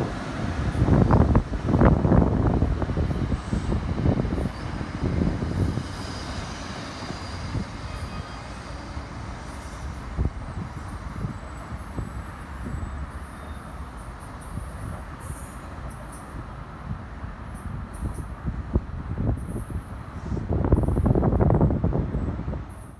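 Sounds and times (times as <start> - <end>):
train rumbling on rails: 0.0 - 22.9
high wheel squeal: 5.5 - 16.3.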